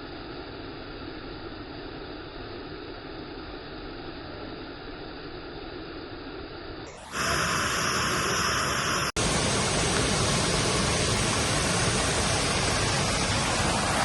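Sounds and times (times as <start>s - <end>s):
waterfall roaring: 6.9s - 14.0s.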